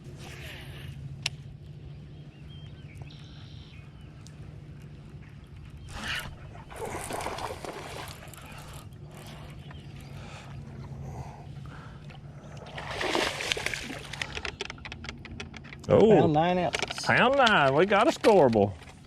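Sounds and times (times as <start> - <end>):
steady low hum: 0.0 - 16.5
water splashing: 6.0 - 9.4, 12.5 - 14.4.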